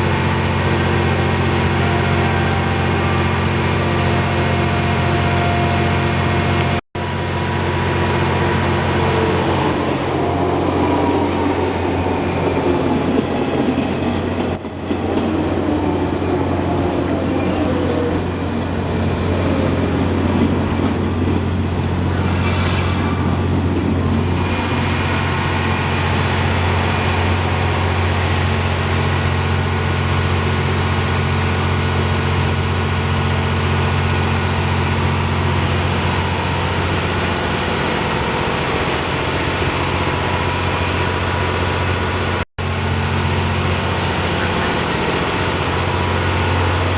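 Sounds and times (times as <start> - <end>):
low train hum: 0.0 - 46.9
train wheels rumbling on rail: 6.2 - 46.9
high wheel squeal: 22.0 - 23.6, 33.9 - 38.4.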